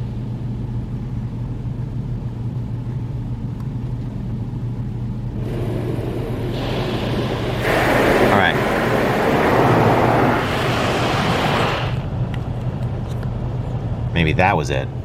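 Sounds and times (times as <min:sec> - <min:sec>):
car wash low rumble: 0:00.0 - 0:15.0
water spray hissing on car: 0:05.4 - 0:12.1.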